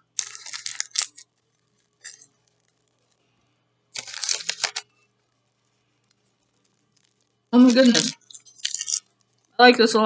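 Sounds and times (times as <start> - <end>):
plastic wrapper crinkling: 0.0 - 3.2, 3.9 - 5.4, 6.0 - 9.6.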